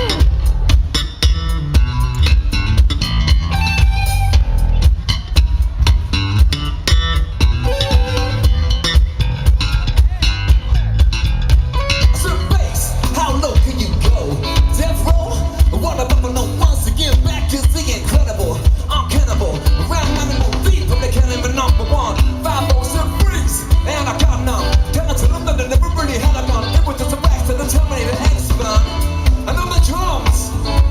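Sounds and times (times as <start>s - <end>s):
live band music: 0.0s - 30.9s
person singing: 12.0s - 30.9s.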